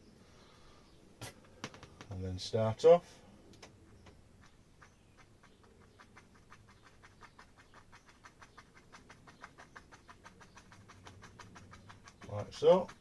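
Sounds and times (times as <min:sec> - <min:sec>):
paint brush dabbing on canvas: 0:04.0 - 0:13.0.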